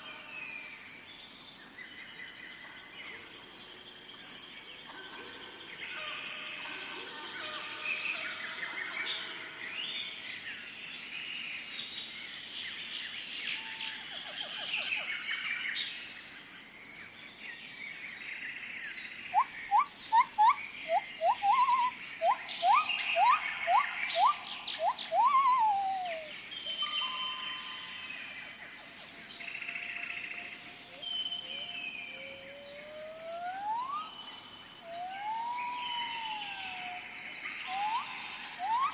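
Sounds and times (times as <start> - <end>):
short rising whistled calls: 19.3 - 27.9, 32.3 - 34.2, 34.8 - 38.9
high animal chirps: 19.4 - 26.3, 37.7 - 38.9.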